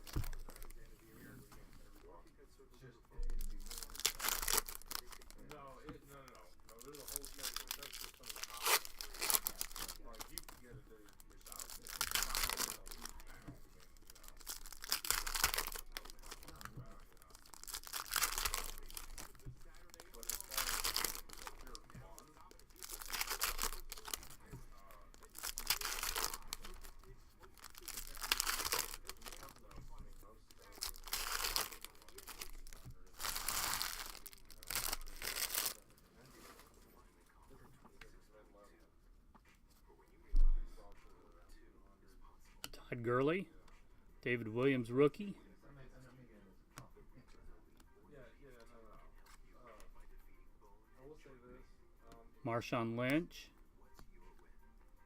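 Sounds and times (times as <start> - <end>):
card pack wrappers tearing and crinkling: 3.3 - 5.6, 6.3 - 35.8.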